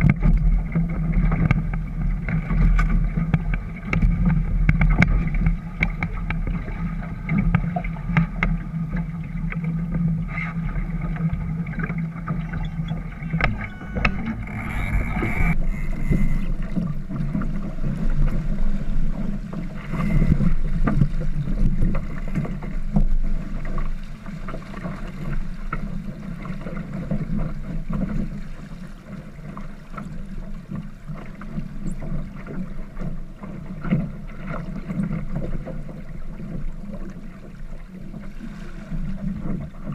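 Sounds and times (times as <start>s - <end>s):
water and hull rumble: 0.0s - 39.9s
high steady hum: 12.2s - 16.9s.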